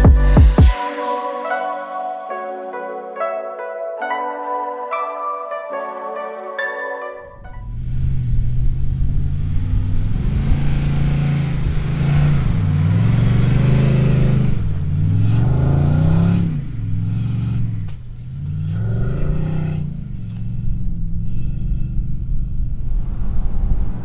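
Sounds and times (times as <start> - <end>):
engine working hard: 7.6 - 22.9.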